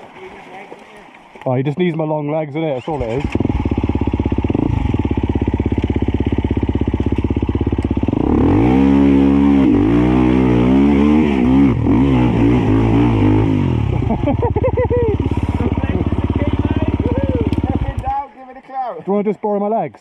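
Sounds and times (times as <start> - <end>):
dirt bike engine revving: 2.8 - 18.1.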